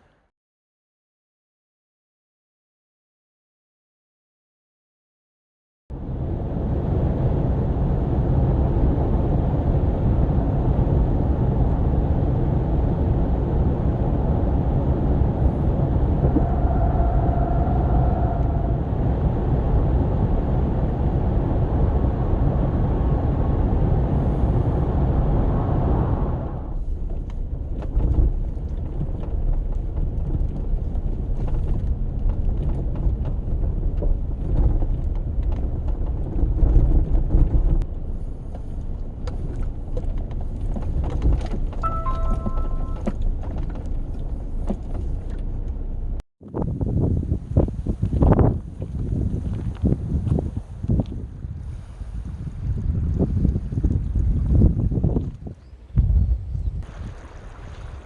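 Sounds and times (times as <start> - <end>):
road and tyre noise: 5.9 - 58.0
car driving rumble: 8.0 - 46.2.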